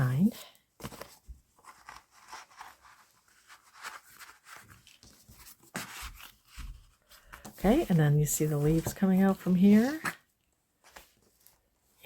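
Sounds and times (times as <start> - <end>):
paper rustling and knocking: 0.8 - 10.2.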